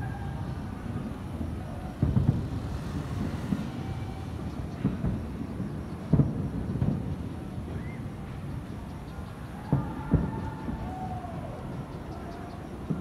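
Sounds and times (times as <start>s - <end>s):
continuous low rumble: 0.0s - 13.0s
fireworks booming: 0.0s - 13.0s.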